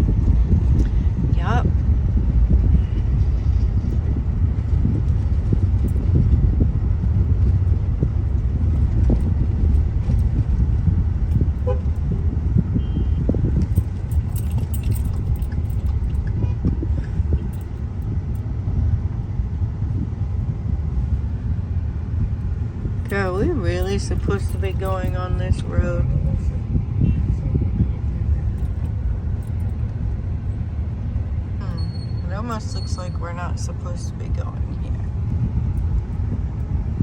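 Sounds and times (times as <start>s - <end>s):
car engine and tyres rumbling: 0.0s - 37.0s
light rattles and clicks: 7.2s - 12.4s, 13.2s - 18.4s, 28.5s - 30.6s.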